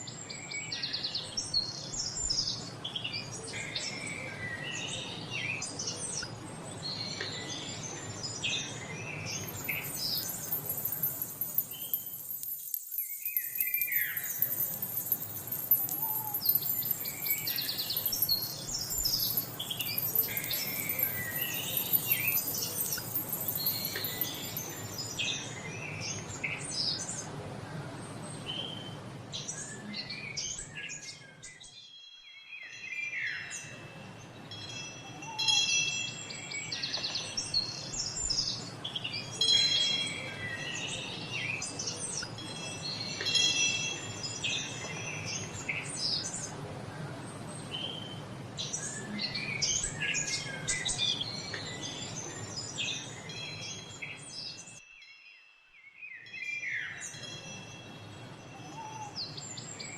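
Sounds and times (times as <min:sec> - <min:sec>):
low background noise: 0:00.0 - 0:31.7, 0:32.4 - 0:59.9
birds chirping and calling: 0:05.6 - 0:26.4
chimes ringing: 0:09.4 - 0:25.5, 0:42.4 - 0:44.8.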